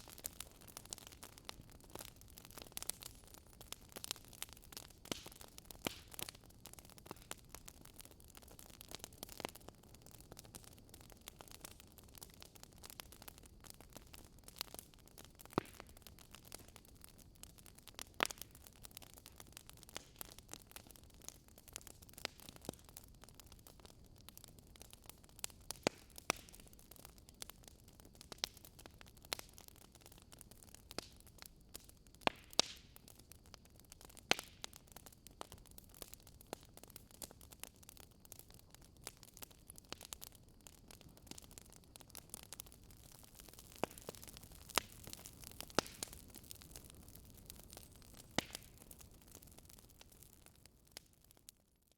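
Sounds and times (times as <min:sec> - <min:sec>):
wood fire crackling: 0:00.0 - 0:51.7.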